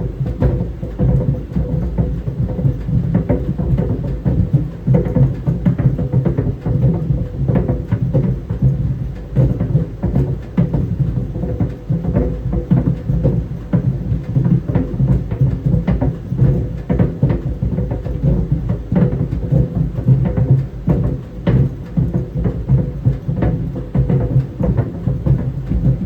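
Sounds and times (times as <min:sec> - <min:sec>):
balls thudding in dryer drum: 0:00.0 - 0:26.0
clothes dryer humming: 0:25.2 - 0:26.0.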